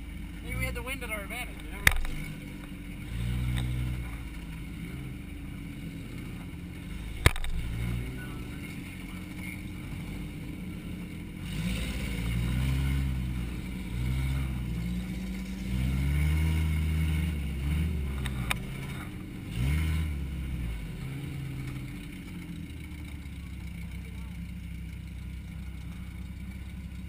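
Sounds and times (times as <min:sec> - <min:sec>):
car engine revving: 0:00.0 - 0:27.0
sharp click: 0:01.8 - 0:02.3, 0:07.2 - 0:07.6.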